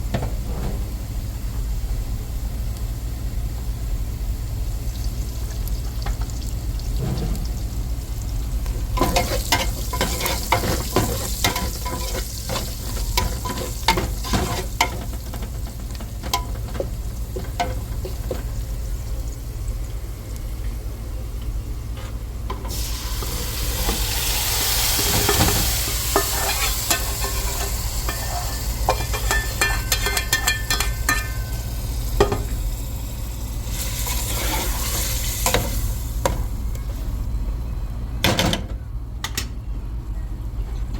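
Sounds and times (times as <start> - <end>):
food sizzling: 4.2 - 20.6, 22.6 - 36.7
utensil scraping frying pan: 8.9 - 18.6, 22.7 - 31.6, 33.7 - 35.9.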